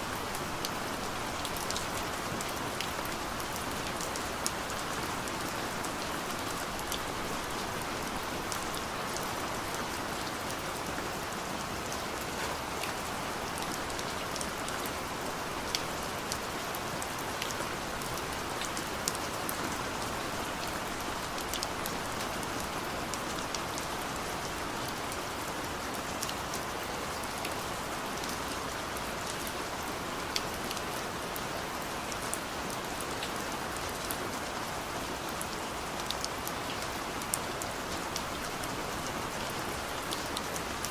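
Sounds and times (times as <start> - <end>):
rain on a car: 0.1 - 40.9.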